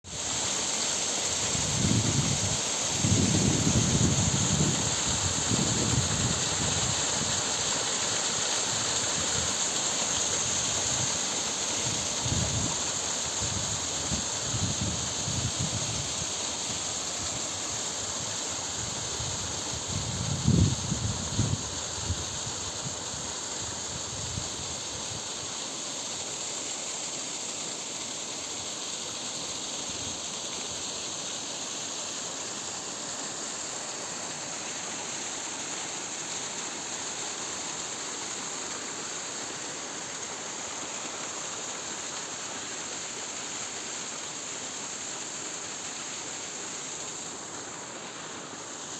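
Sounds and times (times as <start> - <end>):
waterfall rushing: 0.1 - 19.8
wind buffeting on microphone: 19.8 - 22.4.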